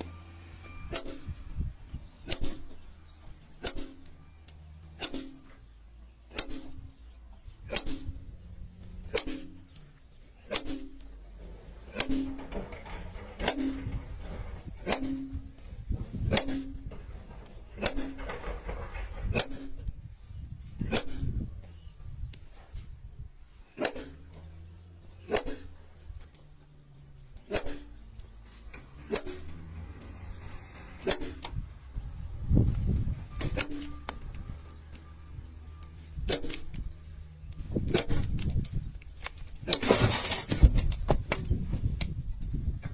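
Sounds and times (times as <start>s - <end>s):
hammer and chisel striking stone: 0.0s - 1.7s, 31.0s - 32.0s.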